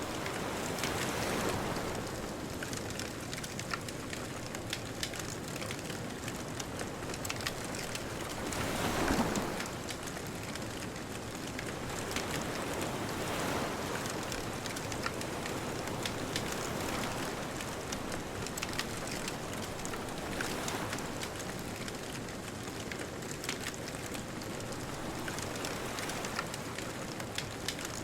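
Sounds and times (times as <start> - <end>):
ocean waves: 0.0 - 28.0
bonfire crackling and popping: 0.2 - 8.8, 17.4 - 28.0.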